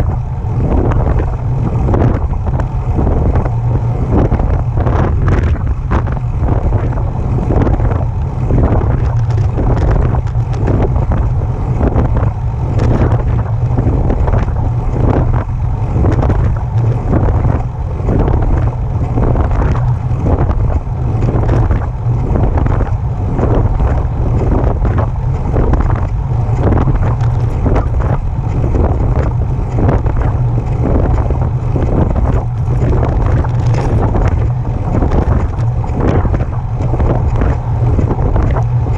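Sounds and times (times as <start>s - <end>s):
e-bike drive rhythmic noise: 0.0s - 38.9s
wind rumble on microphone: 0.0s - 38.9s.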